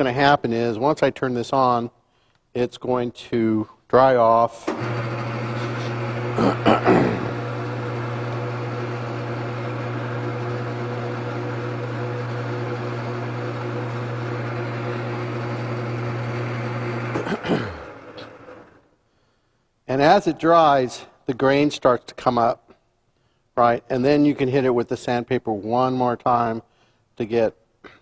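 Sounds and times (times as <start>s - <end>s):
lathe motor humming: 4.6s - 18.8s.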